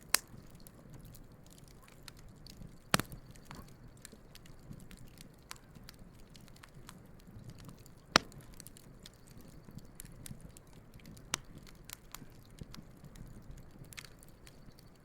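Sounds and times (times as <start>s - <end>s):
sharp fire pops: 0.0s - 14.7s
campfire crackling: 0.0s - 15.0s
low soft rumble of fire: 0.0s - 15.0s.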